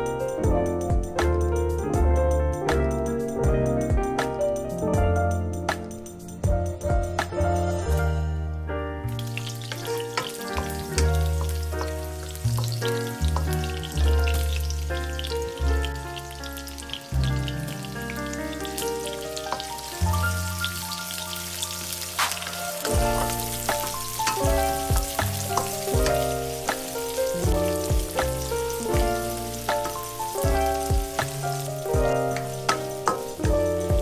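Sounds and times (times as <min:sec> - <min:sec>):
background music with bass: 0:00.0 - 0:34.0
onion and garlic sizzling in oil: 0:09.1 - 0:34.0.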